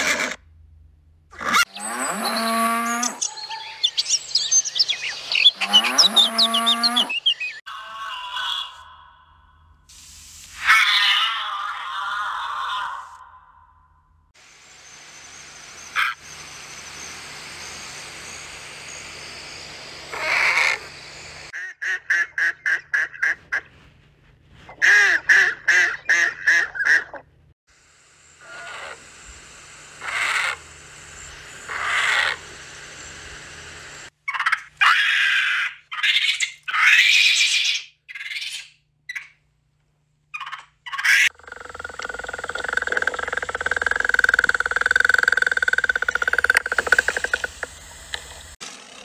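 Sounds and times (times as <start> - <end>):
cranes calling: 15.1 - 21.5, 28.4 - 34.6, 40.4 - 48.5.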